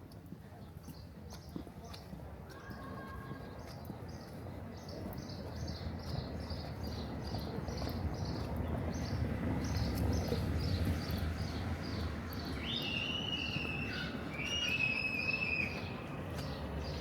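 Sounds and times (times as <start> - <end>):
low town rumble: 0.1 - 17.0
birds chirping and whistling: 11.9 - 16.0.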